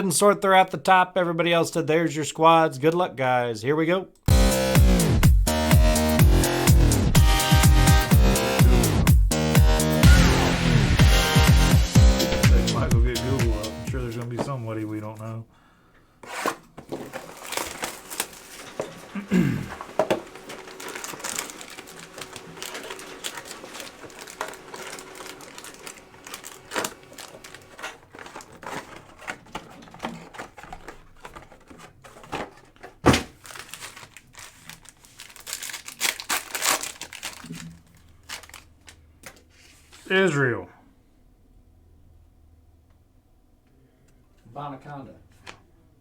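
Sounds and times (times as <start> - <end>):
packaging crinkling: 16.2 - 39.0.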